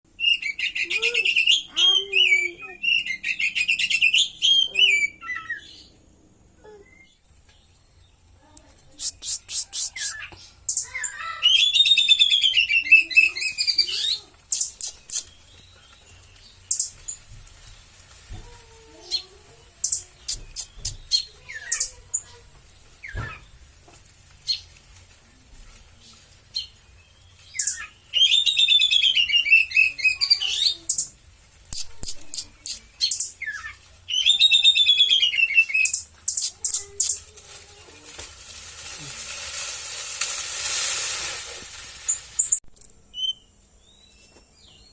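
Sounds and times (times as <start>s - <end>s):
high short bird notes and clicks: 14.5s - 17.2s, 19.8s - 22.0s, 31.7s - 33.7s, 34.8s - 37.3s.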